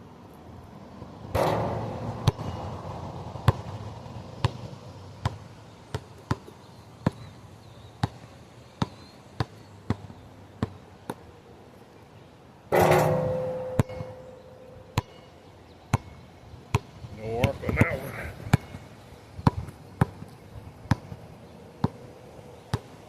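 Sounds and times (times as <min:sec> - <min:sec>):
ball bouncing on hard ground: 0:01.4 - 0:02.6, 0:12.7 - 0:15.2, 0:19.4 - 0:21.2, 0:21.8 - 0:22.0
basketball hitting metal rim: 0:01.4 - 0:02.7, 0:12.7 - 0:15.2.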